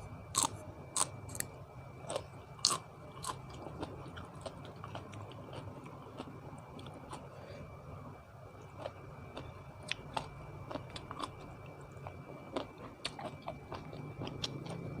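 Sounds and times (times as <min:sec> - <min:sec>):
person chewing crunchy food: 0:00.3 - 0:07.5, 0:08.6 - 0:15.0.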